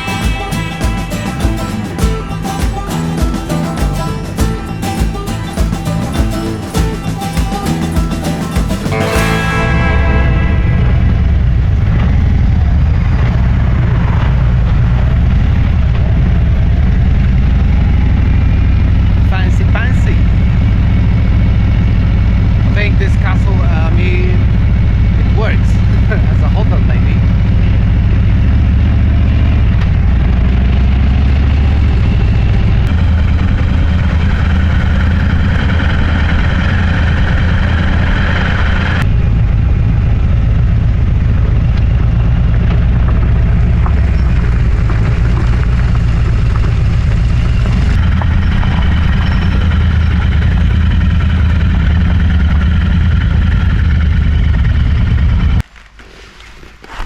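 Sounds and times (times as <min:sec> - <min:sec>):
motorcycle engine running: 0:00.0 - 0:55.6
wind and road noise: 0:00.0 - 0:55.7.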